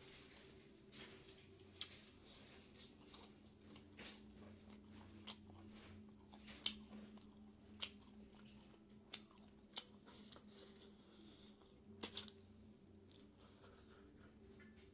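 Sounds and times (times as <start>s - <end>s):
faint electrical hum: 0.0s - 14.9s
wet chewing with mouth smacks: 1.7s - 12.4s.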